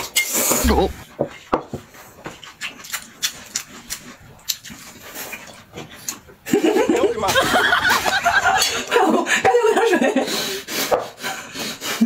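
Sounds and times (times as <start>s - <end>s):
person chewing with wet smacks: 2.2s - 7.0s.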